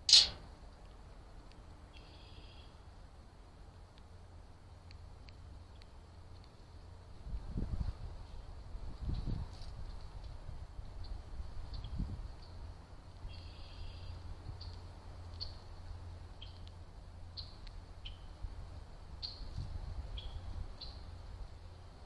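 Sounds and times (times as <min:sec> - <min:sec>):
small birds chirping: 0:01.4 - 0:02.9, 0:09.1 - 0:18.4, 0:19.1 - 0:21.2.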